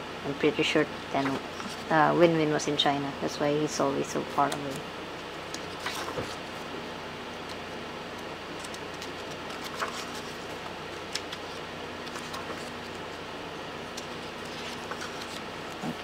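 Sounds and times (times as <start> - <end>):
room hum: 0.0 - 16.0
paper pages clicking and rustling: 5.5 - 6.5, 8.5 - 13.1, 13.9 - 16.0.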